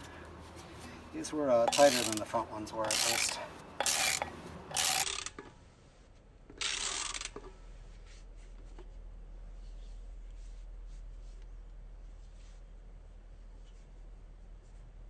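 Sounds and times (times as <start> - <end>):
hand tool rasping scrape: 1.6 - 5.2
low steady hum: 7.3 - 15.0.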